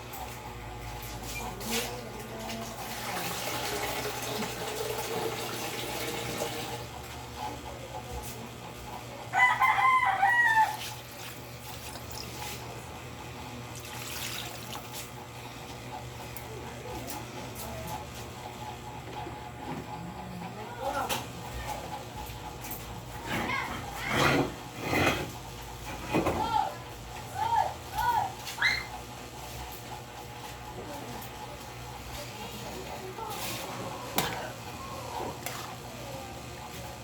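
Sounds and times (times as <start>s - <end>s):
rooster crowing: 9.3s - 11.0s.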